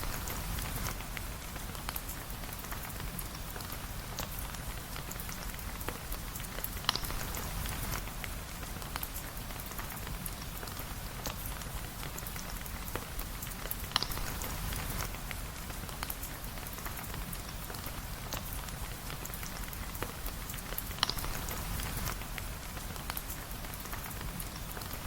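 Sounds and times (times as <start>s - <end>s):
steady rain: 0.0s - 25.0s
sharp ticks and pops: 5.2s - 10.2s, 12.2s - 17.3s, 19.2s - 25.0s.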